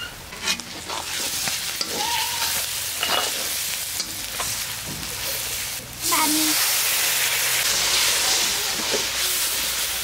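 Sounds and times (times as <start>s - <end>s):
onion sizzling in hot oil: 0.0s - 10.0s
stirring scrapes and knocks: 0.3s - 3.5s.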